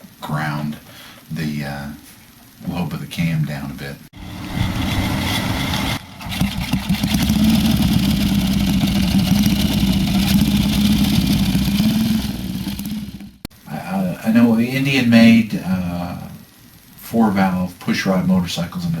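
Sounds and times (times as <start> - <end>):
motorcycle engine running: 4.2 - 13.5.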